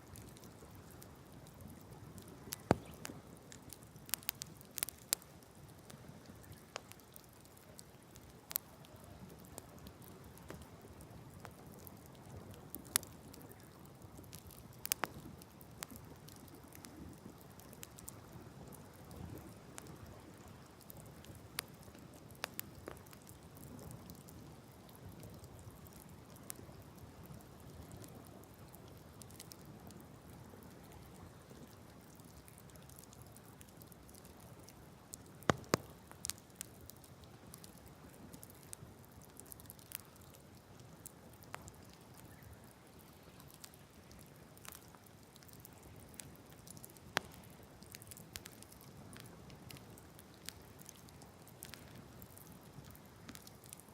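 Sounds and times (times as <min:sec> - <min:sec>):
wood fire crackling: 0:00.0 - 0:53.9
sharp pops from fire: 0:02.2 - 0:05.9, 0:06.5 - 0:08.7, 0:12.8 - 0:18.2, 0:20.6 - 0:24.2, 0:35.1 - 0:40.4, 0:41.4 - 0:42.4, 0:43.2 - 0:53.8.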